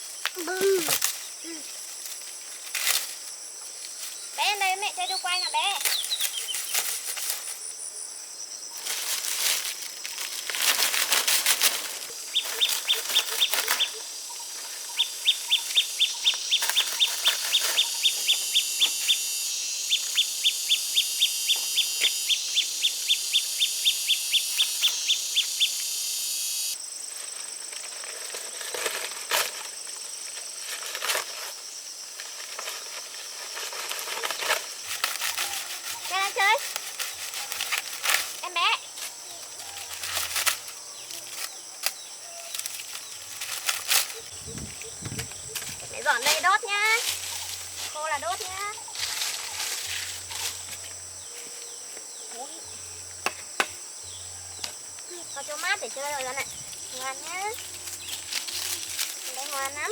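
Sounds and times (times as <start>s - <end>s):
sharp high chirps: 14.9s - 26.8s
high-pitched buzz: 17.2s - 26.8s.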